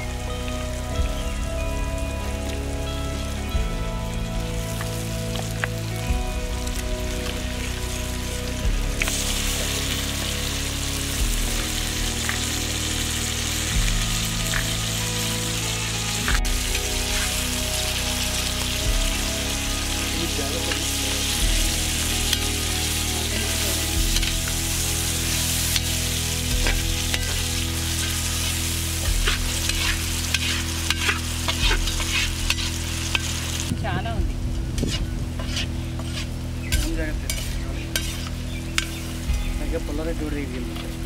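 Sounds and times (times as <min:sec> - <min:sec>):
meat sizzling in oil: 0:00.0 - 0:41.0
metal spatula scraping pan: 0:26.6 - 0:33.4, 0:34.8 - 0:39.0.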